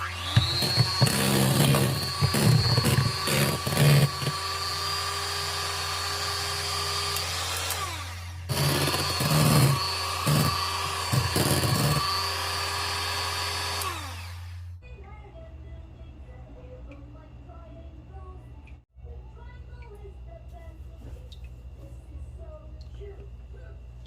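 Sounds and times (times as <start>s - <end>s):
electric mixer motor running: 0.0s - 14.8s.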